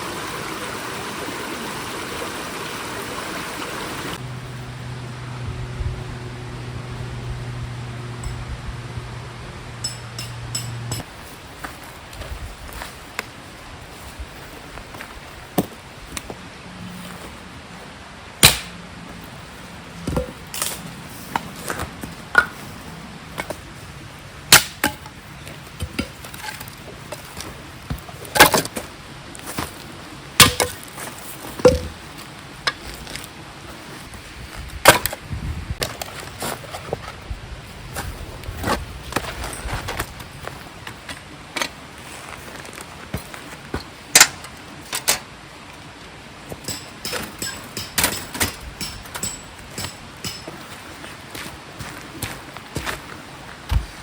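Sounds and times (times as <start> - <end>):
axe chopping firewood: 18.4 - 18.7, 24.5 - 25.0, 30.4 - 30.8, 31.7 - 32.0, 46.7 - 50.6.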